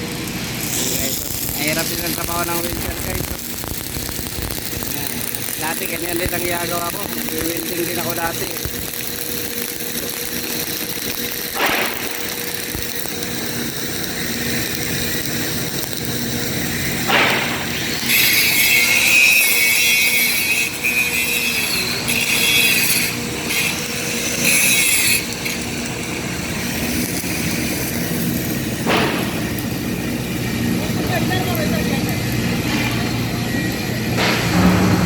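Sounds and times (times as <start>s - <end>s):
high-pitched hissing grind: 0.6s - 29.8s
steady machine hum: 25.6s - 35.0s
metal knock: 34.2s - 35.0s.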